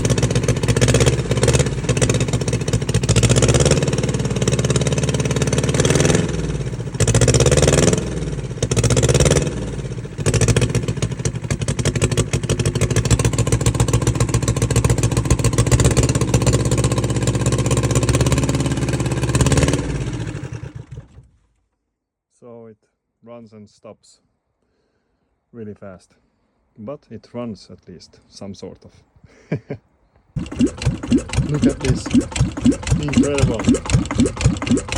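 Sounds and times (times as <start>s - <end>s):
diesel engine running rough: 0.0s - 21.3s, 30.4s - 34.9s.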